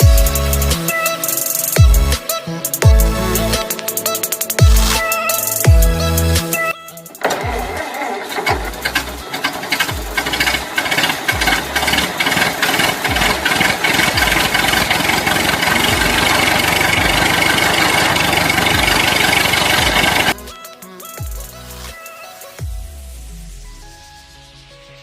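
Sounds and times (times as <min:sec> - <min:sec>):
electronic music: 0:00.0 - 0:25.0
loud engine-like rattling: 0:07.2 - 0:20.4.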